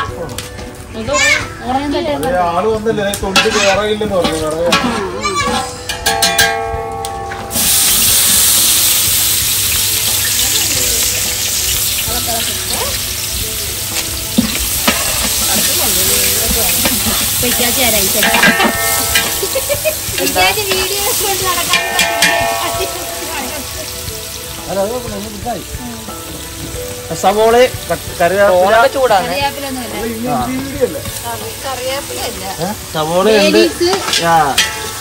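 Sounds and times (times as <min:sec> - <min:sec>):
hot oil sizzling in a pot: 0:00.0 - 0:35.0
stirring and scraping in a pot: 0:14.3 - 0:24.0.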